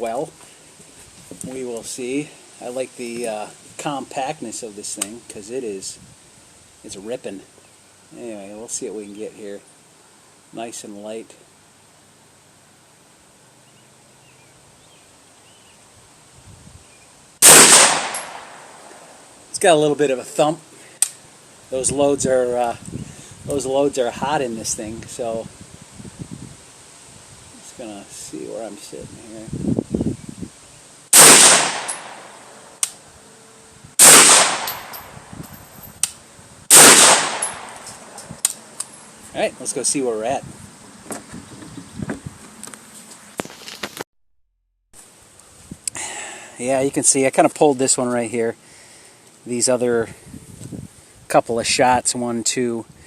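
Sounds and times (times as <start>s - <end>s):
faint bird chirps: 13.6s - 15.8s
gunshots with echoing tail: 17.4s - 18.7s, 31.2s - 32.4s, 34.0s - 34.9s, 36.7s - 37.8s.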